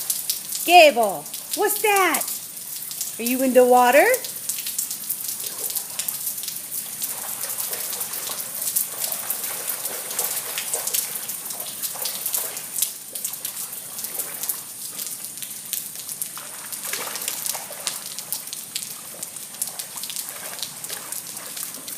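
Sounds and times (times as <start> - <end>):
dog splashing through water: 5.3 - 15.3, 16.1 - 21.9.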